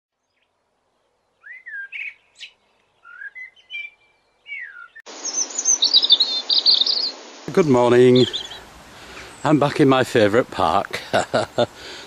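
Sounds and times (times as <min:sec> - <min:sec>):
high bird chirping: 0:00.2 - 0:09.6
songbird singing falling notes: 0:00.2 - 0:09.9
steady outdoor hiss: 0:00.2 - 0:12.0.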